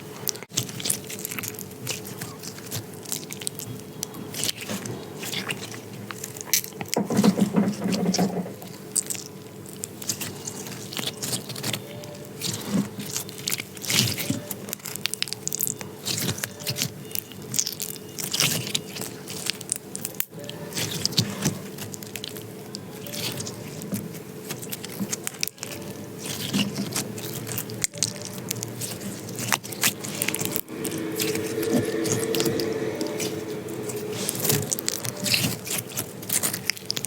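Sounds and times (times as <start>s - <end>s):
hands squishing slime: 0.0s - 37.0s.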